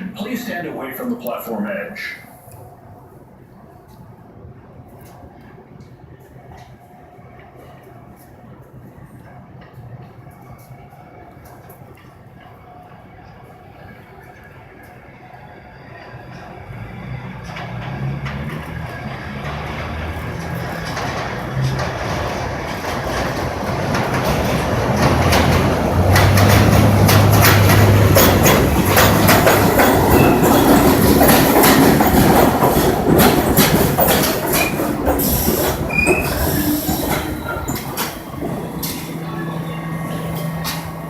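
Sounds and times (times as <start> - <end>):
train wheels clattering over rail joints: 16.3 - 39.4
high-pitched wheel squeal: 35.9 - 38.0.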